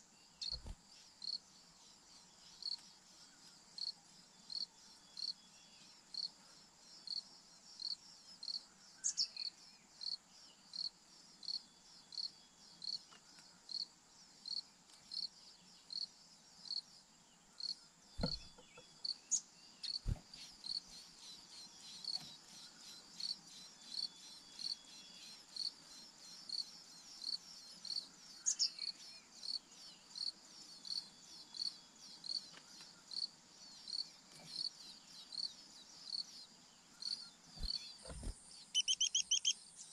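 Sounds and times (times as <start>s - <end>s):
bird calls: 0.0s - 0.8s, 18.2s - 23.1s, 36.9s - 39.9s
insect chirping: 0.0s - 39.9s.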